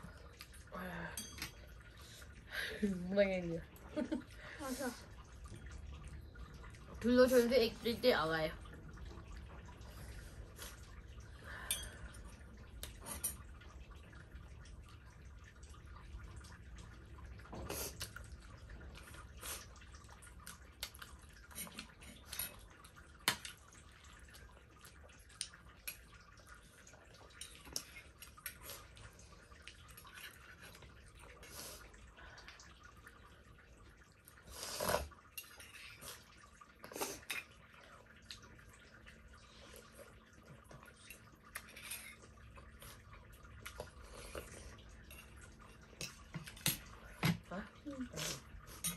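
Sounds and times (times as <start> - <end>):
chewing and slurping: 15.0 - 32.0, 33.8 - 47.2.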